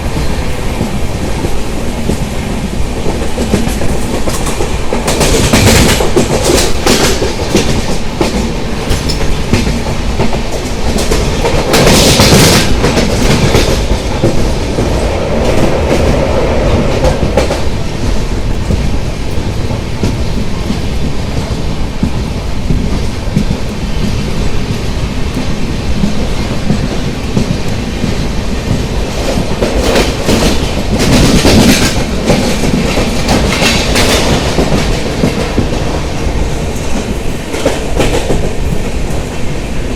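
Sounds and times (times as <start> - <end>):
train rumble from on board: 0.0 - 39.9
wheels clattering over rail joints: 26.0 - 36.0.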